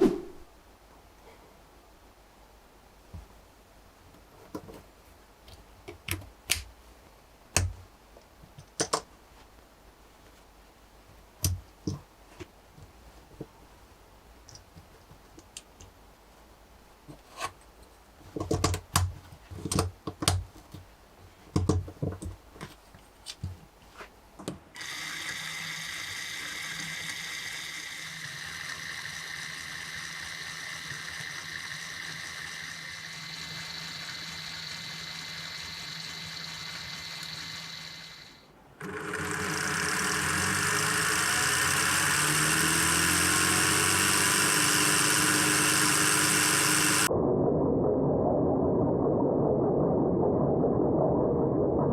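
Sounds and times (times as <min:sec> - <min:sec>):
toy motor whirring: 0:24.8 - 0:47.1.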